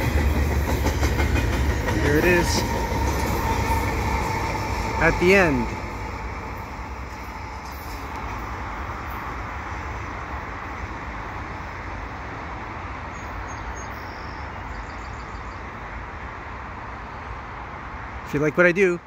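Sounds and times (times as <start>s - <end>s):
freight train rumbling: 0.0s - 19.0s
faint bird chirps: 13.1s - 15.7s.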